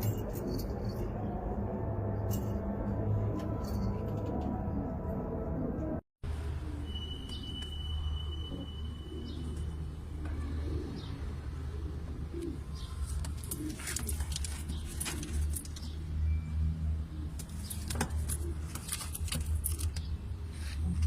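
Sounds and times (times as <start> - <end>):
pigeons cooing: 9.1 - 15.9
sharp clicks and rustles: 12.4 - 16.0, 17.3 - 21.0.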